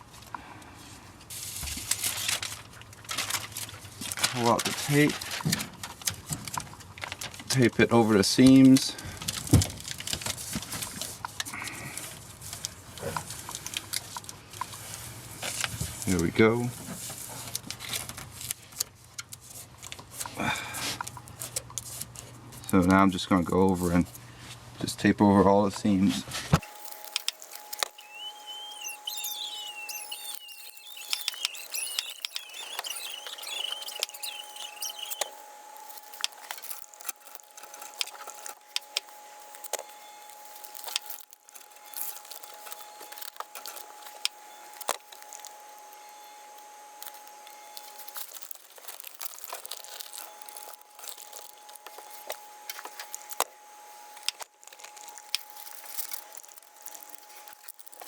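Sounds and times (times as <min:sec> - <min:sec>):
foil tape crinkling: 0:01.3 - 0:07.7, 0:08.4 - 0:14.2, 0:26.6 - 0:58.0
tape unrolling squeal: 0:26.6 - 0:58.0.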